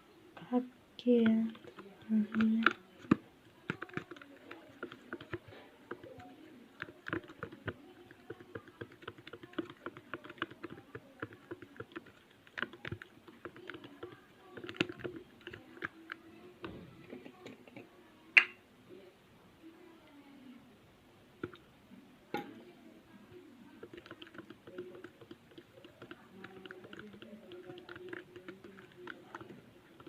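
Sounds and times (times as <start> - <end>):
slime squelching and clicking: 1.2 - 16.3, 23.8 - 30.0.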